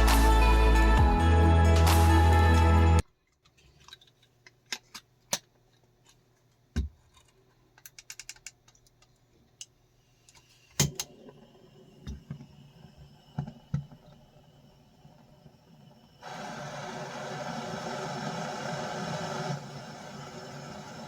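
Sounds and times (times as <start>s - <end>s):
background music: 0.0s - 3.0s.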